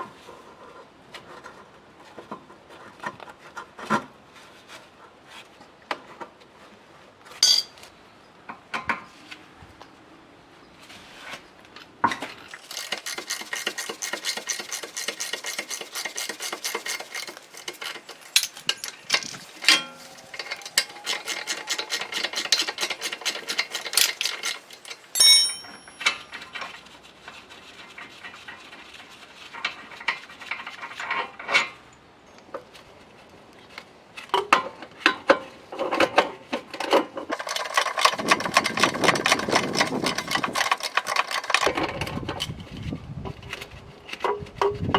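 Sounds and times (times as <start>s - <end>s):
metal clink: 7.4s - 7.8s, 19.6s - 20.1s, 25.1s - 26.4s
rapid ratchet clicking: 12.5s - 26.3s, 37.3s - 41.7s.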